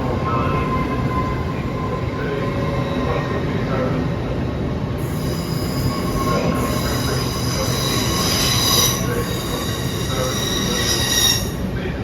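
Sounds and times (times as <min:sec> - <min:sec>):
low rumble of train running: 0:00.0 - 0:12.0
train wheels squealing: 0:05.0 - 0:11.7.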